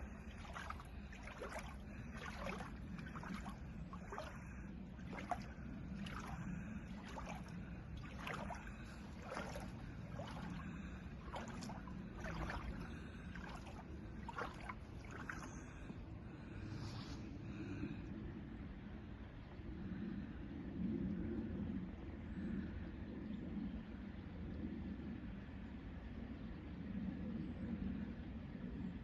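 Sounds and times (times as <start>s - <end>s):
floodwater splashing: 0.0s - 16.9s
steady low hum: 0.0s - 29.0s.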